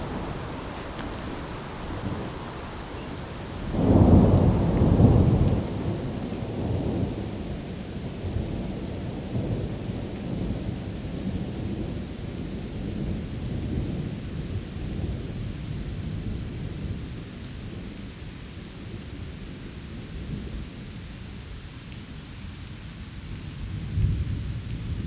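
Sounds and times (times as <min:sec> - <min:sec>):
low thunder rumble: 0:00.0 - 0:17.2
steady rain: 0:00.0 - 0:25.0.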